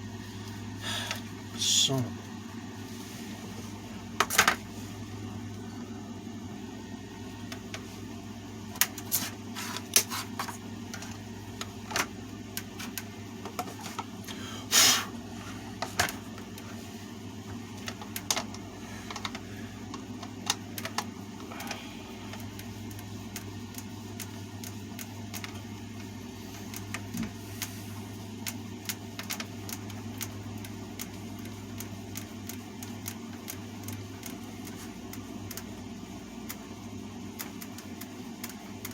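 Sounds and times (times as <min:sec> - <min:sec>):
steady low hum: 0:00.0 - 0:38.9
clicks and clatter of fan parts: 0:04.2 - 0:04.6, 0:08.7 - 0:14.4, 0:15.8 - 0:16.8, 0:17.4 - 0:27.7, 0:28.4 - 0:35.7, 0:37.3 - 0:38.9.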